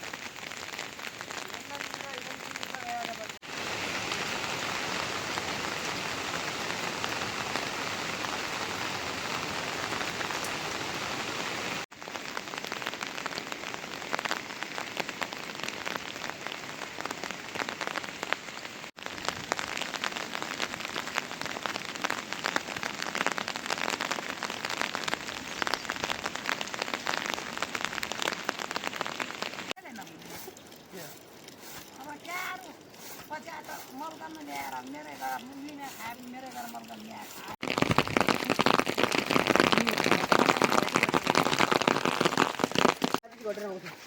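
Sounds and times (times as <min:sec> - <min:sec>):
raindrops pattering: 0:00.0 - 0:43.9
steady rain hiss: 0:00.0 - 0:44.0.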